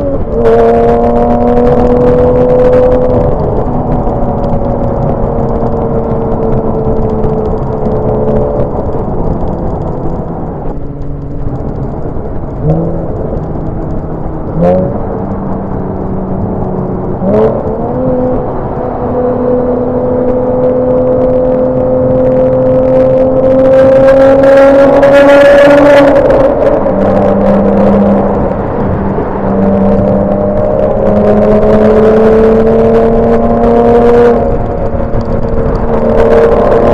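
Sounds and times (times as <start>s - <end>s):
car engine revving while driving: 0.0s - 36.9s.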